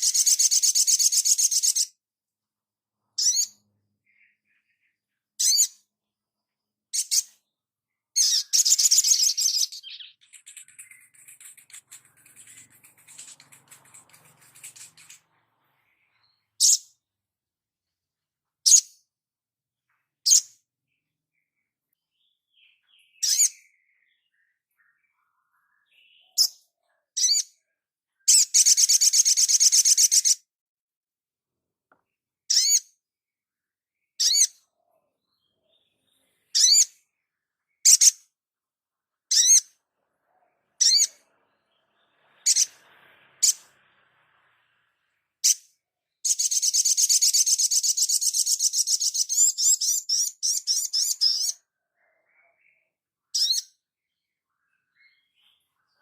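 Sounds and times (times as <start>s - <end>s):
bird chirping: 0.0s - 30.5s, 31.9s - 56.0s
bird rattling trill: 10.2s - 15.3s.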